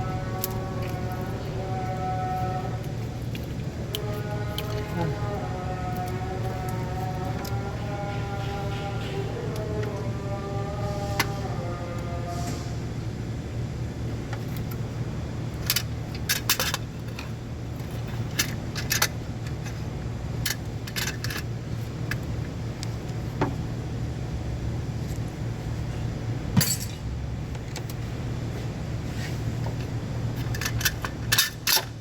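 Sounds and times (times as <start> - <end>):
low hum: 0.0 - 32.0
metal tools clinking: 26.6 - 27.1.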